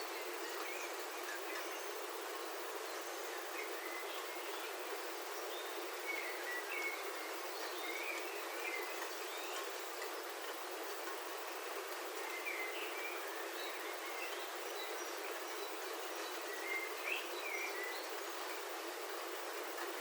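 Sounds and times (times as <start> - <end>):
birds chirping: 0.0 - 20.0
rain on a roof: 4.8 - 16.6, 18.1 - 20.0.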